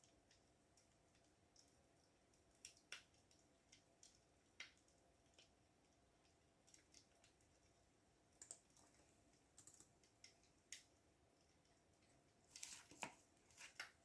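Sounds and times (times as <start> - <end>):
computer keyboard keystrokes: 8.4 - 8.8, 9.6 - 9.9.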